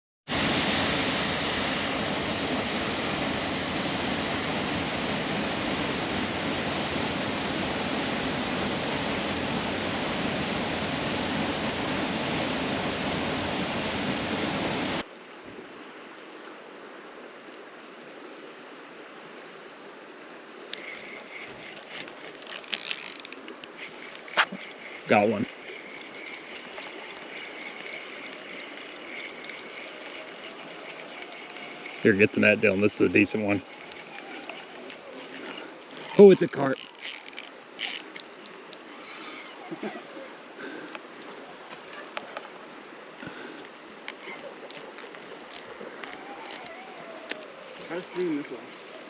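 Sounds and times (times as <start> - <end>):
river water rushing: 20.3 - 39.0.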